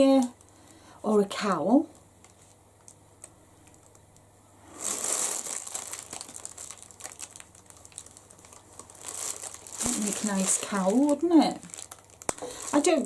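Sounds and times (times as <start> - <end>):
packaging crinkling: 2.2 - 13.0.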